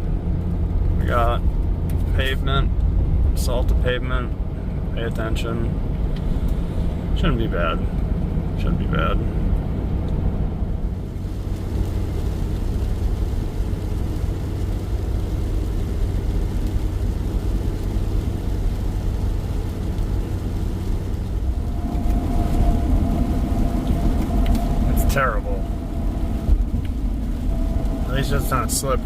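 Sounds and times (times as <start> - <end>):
truck engine and road rumble: 0.0 - 29.0.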